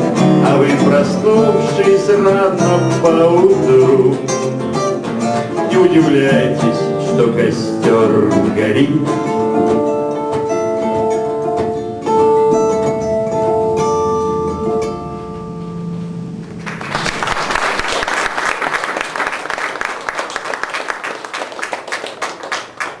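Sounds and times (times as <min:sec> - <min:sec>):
acoustic guitar playing: 0:00.0 - 0:20.4
audience applauding: 0:16.4 - 0:23.0.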